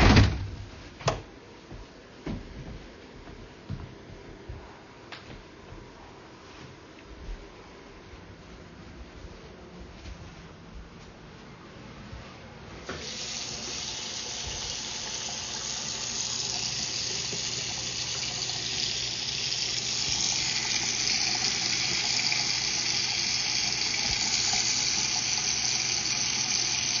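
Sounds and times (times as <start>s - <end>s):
water running into drain: 12.9s - 27.0s.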